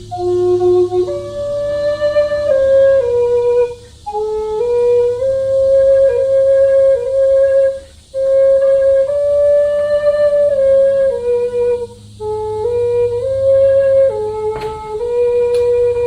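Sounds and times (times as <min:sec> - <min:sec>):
flute slow melody: 0:00.0 - 0:16.0.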